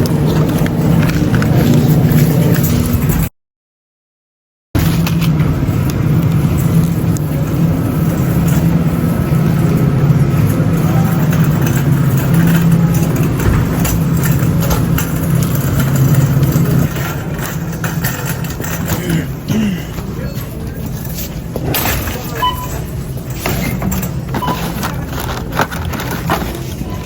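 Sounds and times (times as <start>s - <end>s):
vehicle engine drone: 4.8s - 21.2s
road noise: 4.8s - 27.0s.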